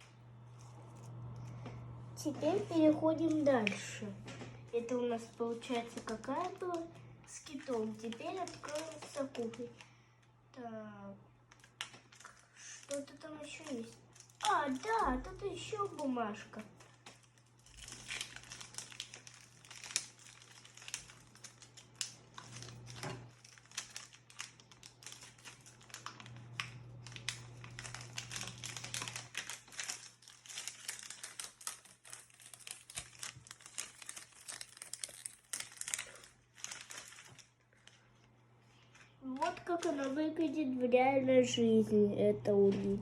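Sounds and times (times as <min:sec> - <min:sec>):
packaging crinkling and rustling: 0:00.0 - 0:10.7, 0:11.4 - 0:40.9
packaging tearing: 0:04.8 - 0:09.9, 0:11.5 - 0:38.0, 0:39.3 - 0:40.2.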